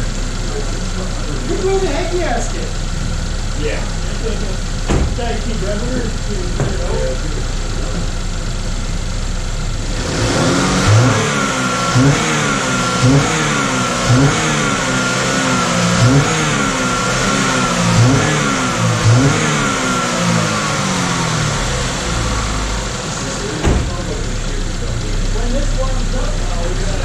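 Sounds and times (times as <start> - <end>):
car engine revving in blips: 2.8 - 27.0.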